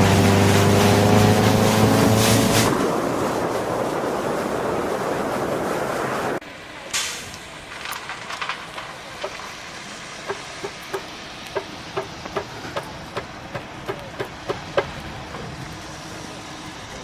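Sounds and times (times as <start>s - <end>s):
steady background hiss: 6.4s - 17.0s.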